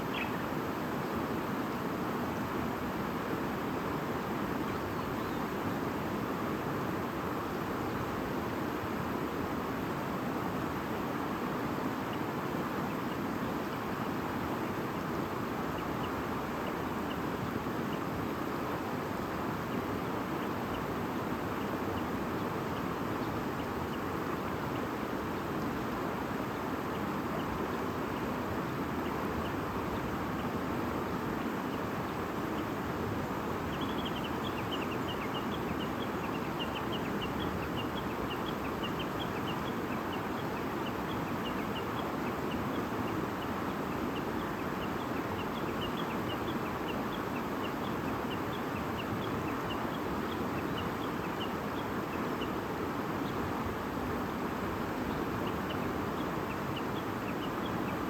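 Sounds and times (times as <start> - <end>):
small birds chirping: 0.0 - 0.5, 31.4 - 58.0.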